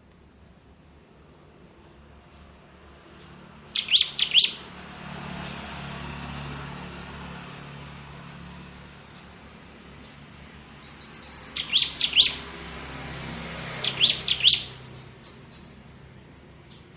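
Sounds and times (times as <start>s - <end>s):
bird calling sharp high notes: 3.8s - 4.7s, 10.9s - 12.5s, 13.8s - 14.8s.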